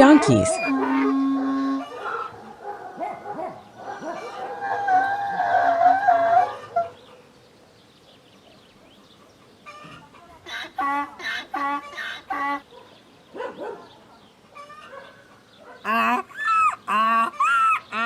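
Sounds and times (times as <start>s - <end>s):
domestic fowl calling: 0.6s - 7.2s, 9.6s - 12.7s, 14.5s - 18.0s.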